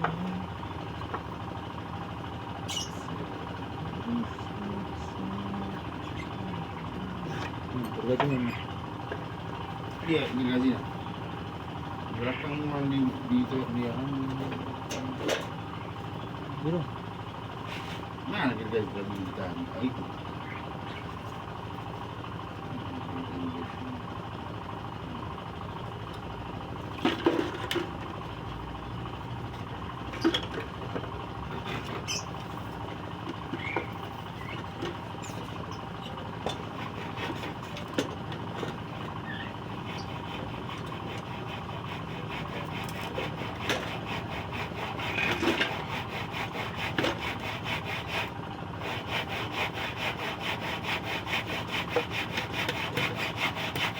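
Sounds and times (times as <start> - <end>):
steady background hum: 0.0 - 53.9
saw cutting wood: 31.5 - 53.9.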